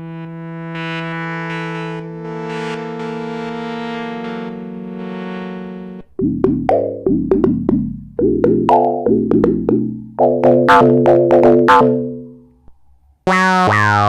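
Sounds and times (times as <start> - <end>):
synthesizer held tone: 0.8 - 12.4
short plucked synth notes: 6.0 - 12.5.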